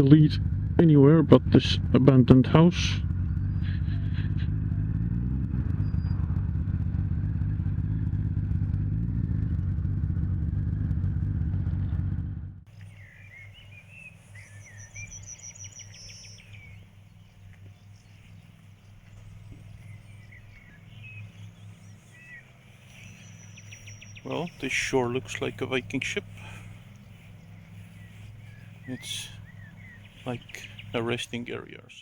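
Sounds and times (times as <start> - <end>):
motorcycle engine idling: 0.0 - 32.0
birds chirping and trilling: 2.5 - 6.5, 12.7 - 32.0.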